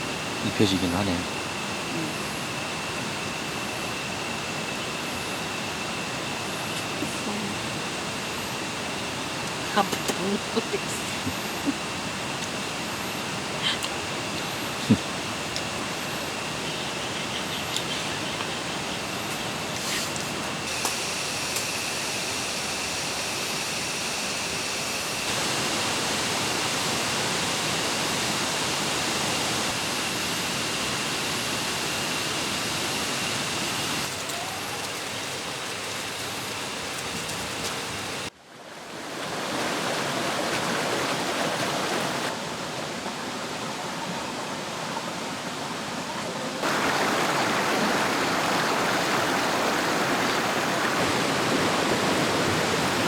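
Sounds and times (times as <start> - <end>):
stream rushing over rocks: 33.9 - 53.0.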